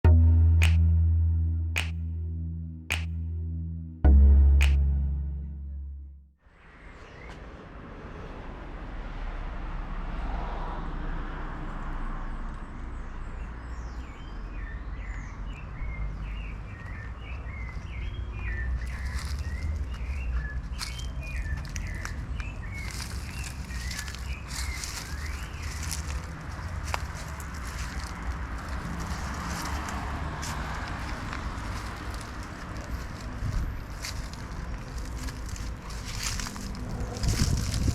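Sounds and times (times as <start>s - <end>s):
steady low rumble: 0.0s - 6.2s, 30.8s - 37.9s
small birds chirping: 13.4s - 37.9s.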